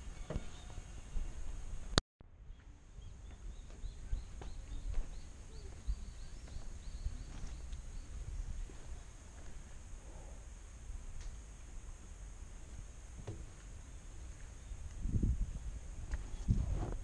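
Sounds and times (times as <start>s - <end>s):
bird chirping: 0.0s - 1.4s, 2.4s - 9.1s.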